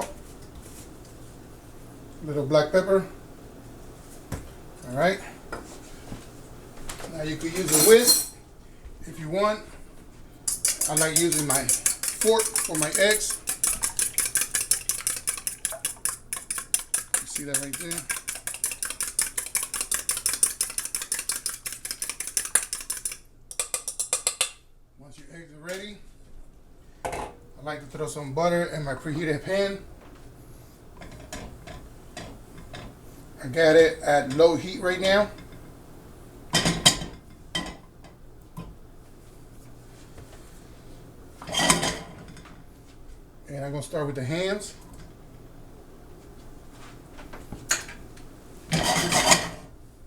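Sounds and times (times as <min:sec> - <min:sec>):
steady low hum: 0:00.0 - 0:41.5
cookware and utensils clattering: 0:07.5 - 0:08.4, 0:10.5 - 0:24.4, 0:41.4 - 0:42.4, 0:48.7 - 0:49.7
fork beating eggs in bowl: 0:10.4 - 0:24.6.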